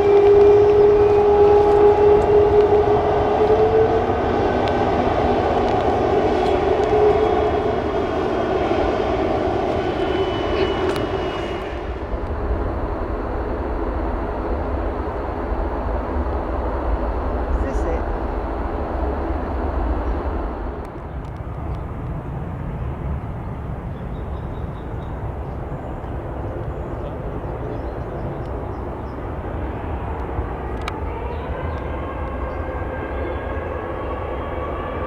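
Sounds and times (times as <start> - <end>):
low rumble: 0.0 - 33.3
jet engines whining: 0.0 - 35.0.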